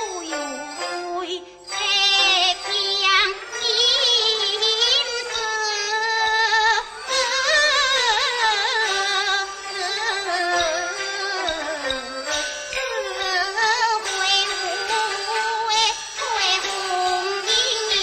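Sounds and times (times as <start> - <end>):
opera accompaniment: 0.0 - 18.0
opera singing with vibrato: 0.0 - 18.0.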